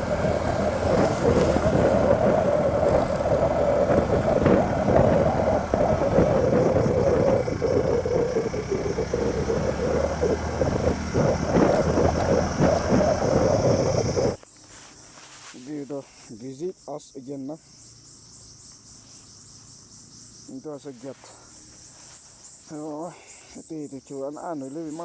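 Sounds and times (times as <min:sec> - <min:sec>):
motorcycle engine running: 0:00.0 - 0:14.4
wind on microphone: 0:00.0 - 0:14.4.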